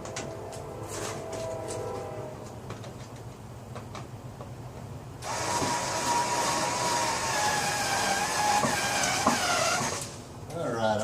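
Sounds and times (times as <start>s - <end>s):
power tool motor whining: 5.2s - 10.2s.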